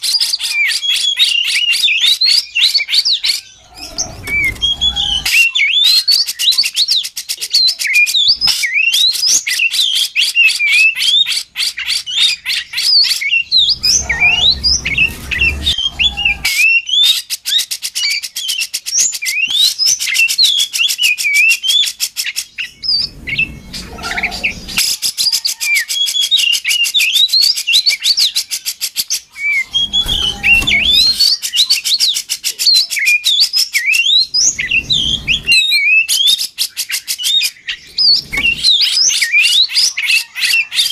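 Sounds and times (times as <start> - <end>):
bird singing whistled phrases: 0.0 - 11.3, 11.9 - 40.9
low rumbles: 13.5 - 16.5, 22.8 - 24.8.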